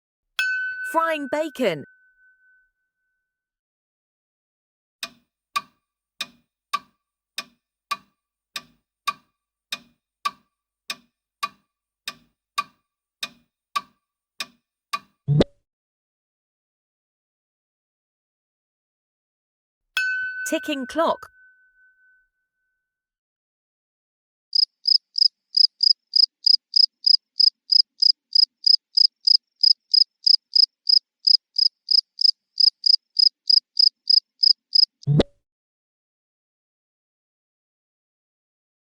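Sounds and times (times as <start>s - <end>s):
clock ticking: 24.6s - 34.9s
cricket chirping: 24.6s - 35.0s.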